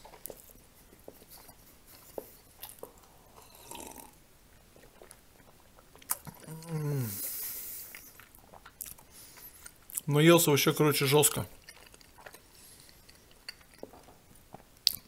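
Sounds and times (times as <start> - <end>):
man chewing: 0.0 - 10.1, 11.5 - 15.0
slurp from a mug: 2.6 - 4.2
man humming mm: 6.4 - 7.4.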